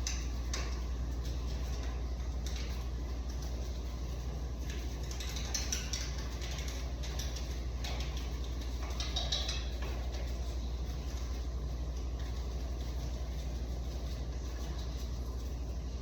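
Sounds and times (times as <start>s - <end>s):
small parts clicking and rattling: 4.6s - 10.3s.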